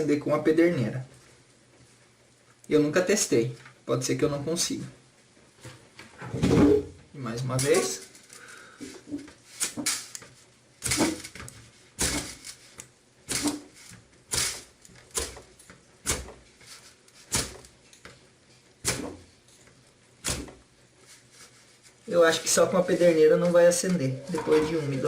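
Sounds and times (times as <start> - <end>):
ferro rod scraping: 7.6 - 15.4, 20.2 - 25.0.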